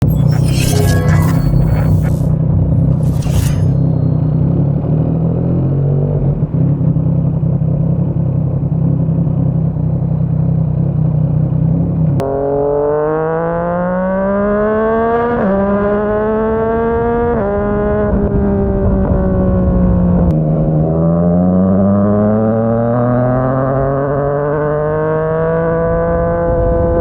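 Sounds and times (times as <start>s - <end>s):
gear upshifts: 0.0s - 4.3s.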